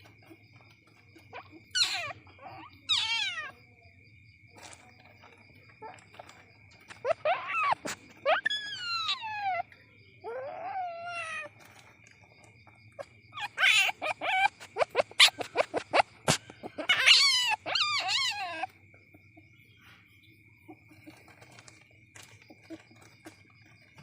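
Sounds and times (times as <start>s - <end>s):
young civet squealing and chirping: 0.0s - 3.6s, 6.8s - 11.7s, 12.9s - 18.8s.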